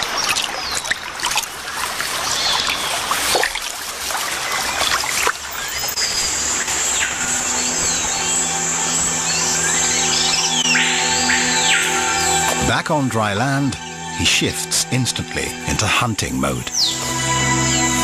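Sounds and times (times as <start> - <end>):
birds chirping: 0.0 - 3.3, 4.2 - 18.0
water splashing: 0.0 - 7.0
music with sustained tones: 5.6 - 18.0.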